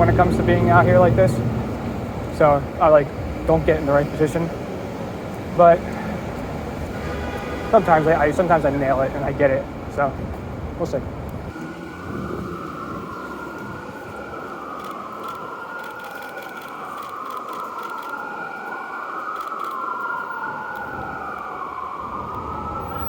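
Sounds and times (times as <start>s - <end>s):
emergency siren wailing: 0.0s - 23.0s.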